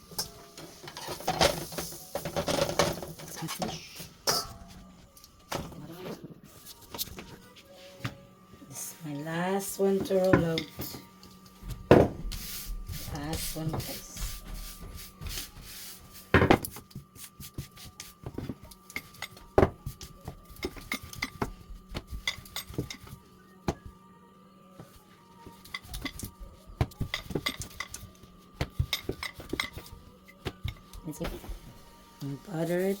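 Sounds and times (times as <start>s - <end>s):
kitchen utensils clinking: 0.0s - 4.8s, 18.4s - 19.7s, 20.4s - 21.5s, 22.1s - 23.2s, 25.4s - 26.4s, 27.0s - 31.5s.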